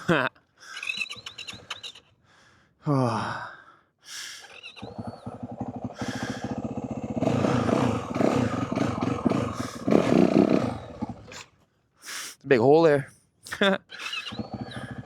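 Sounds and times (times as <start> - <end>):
motorcycle engine idling and revving: 4.8 - 11.4, 14.3 - 15.0.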